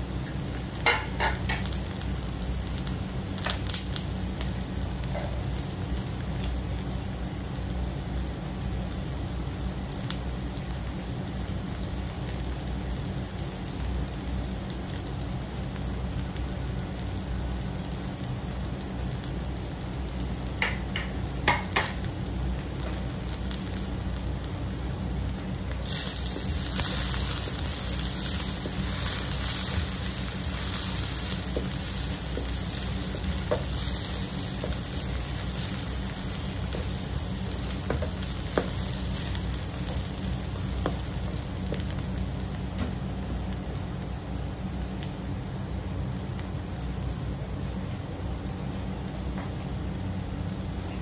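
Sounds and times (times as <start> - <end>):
onions sizzling in hot oil: 0.0 - 51.0
sharp oil crackles: 22.0 - 44.2.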